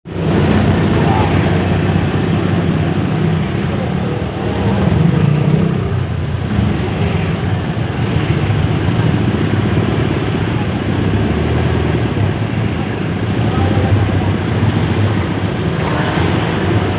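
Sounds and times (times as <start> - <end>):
road and traffic noise: 0.0 - 16.9
vehicle engine running: 0.1 - 16.9.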